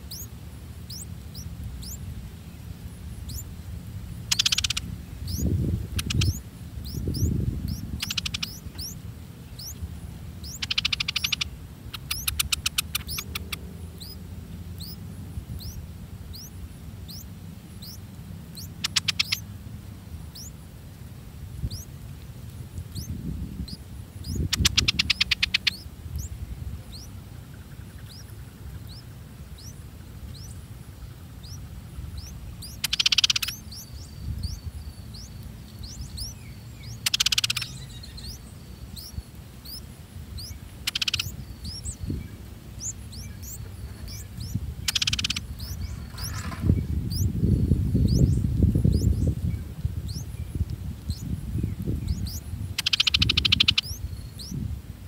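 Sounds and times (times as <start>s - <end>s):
rapid chattering bird trills: 0.0s - 0.3s, 0.9s - 2.0s, 3.2s - 3.5s, 4.2s - 9.0s, 9.6s - 9.8s, 10.4s - 14.2s, 14.8s - 15.0s, 15.6s - 19.5s, 20.3s - 20.5s, 21.7s - 21.9s, 22.9s - 23.1s, 23.7s - 26.3s, 26.9s - 30.6s, 31.2s - 42.1s, 42.7s - 47.4s, 51.1s - 51.3s, 52.1s - 54.6s
birds chirping: 0.0s - 21.0s, 21.6s - 22.0s, 22.8s - 54.6s
harsh bird calls: 4.2s - 15.0s, 15.6s - 19.5s, 22.9s - 49.4s, 52.0s - 54.6s.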